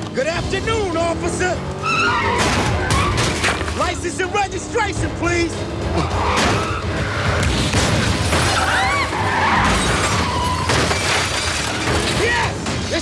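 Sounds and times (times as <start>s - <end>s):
metal crunching: 0.1s - 4.2s, 4.8s - 13.0s
glass shattering: 7.5s - 13.0s.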